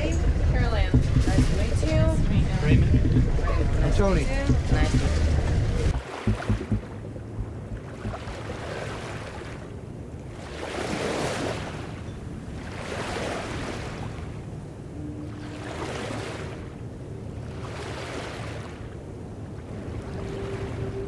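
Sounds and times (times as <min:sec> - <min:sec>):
low steady hum: 0:00.0 - 0:10.2
wind on microphone: 0:00.0 - 0:21.0
sea water washing and splashing: 0:05.8 - 0:21.0.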